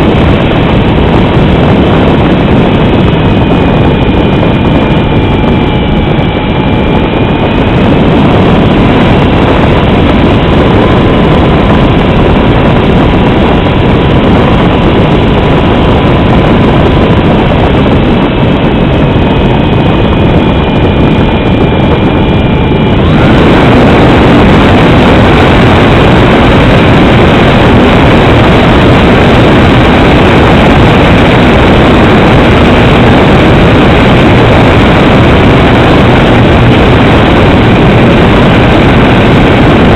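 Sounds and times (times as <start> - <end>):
aircraft engines and propellers droning: 0.0 - 39.9
faint steady whine: 0.0 - 39.9
rushing air noise: 0.0 - 39.9.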